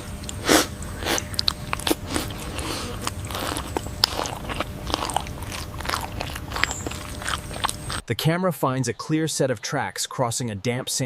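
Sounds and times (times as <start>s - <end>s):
deer crunching vegetation: 0.2s - 8.1s.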